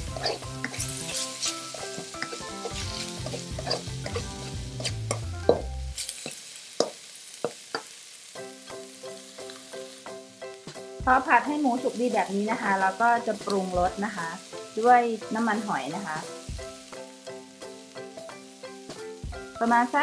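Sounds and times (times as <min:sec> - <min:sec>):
spatula scraping and knocking pan: 0:00.0 - 0:07.9
pork sizzling in a wok: 0:00.0 - 0:20.0.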